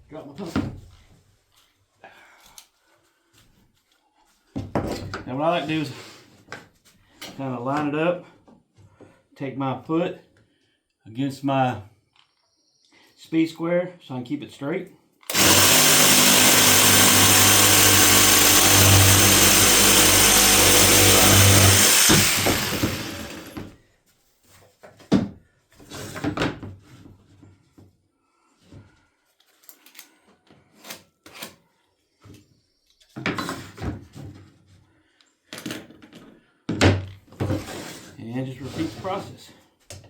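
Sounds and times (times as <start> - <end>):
jigsaw cutting wood: 15.3 - 23.8.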